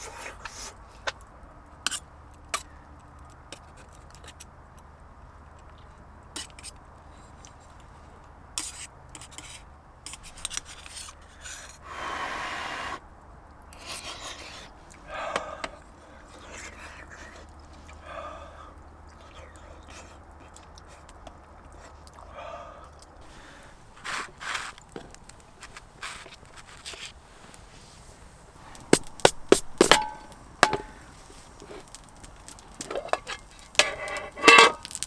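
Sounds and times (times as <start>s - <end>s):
rubbing and scraping: 23.2s - 35.0s
handling clicks and knocks: 28.6s - 35.0s.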